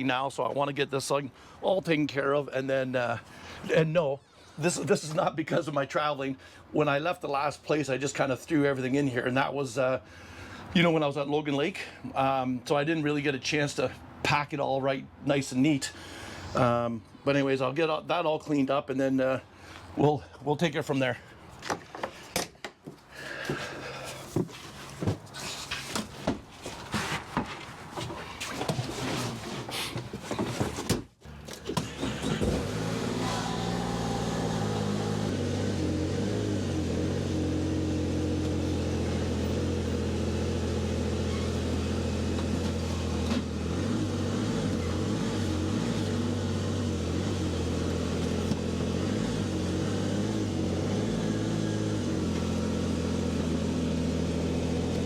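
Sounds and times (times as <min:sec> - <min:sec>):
car engine starting and running: 0:31.2 - 0:55.0.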